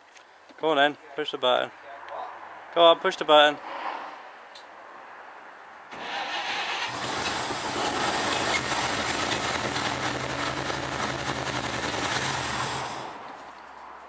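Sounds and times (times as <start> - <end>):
engine starter cranking: 5.9 - 13.1
pickup engine running: 5.9 - 13.4.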